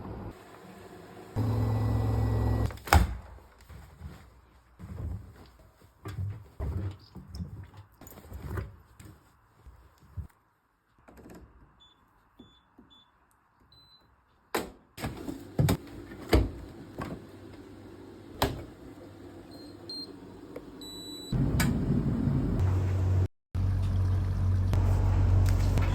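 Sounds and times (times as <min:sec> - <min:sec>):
washing machine humming: 0:00.0 - 0:02.7, 0:15.0 - 0:25.9.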